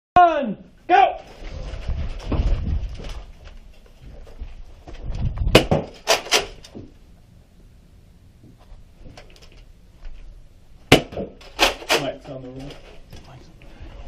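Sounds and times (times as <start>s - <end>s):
people scuffling and thumping: 1.2s - 6.0s
sharp knocks: 5.4s - 6.9s, 10.9s - 12.0s.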